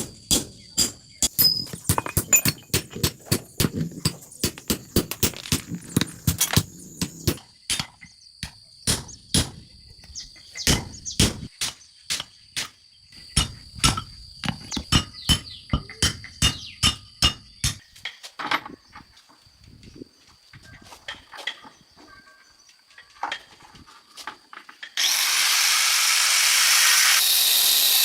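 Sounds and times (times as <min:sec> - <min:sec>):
high metallic ringing: 0:01.2 - 0:02.8.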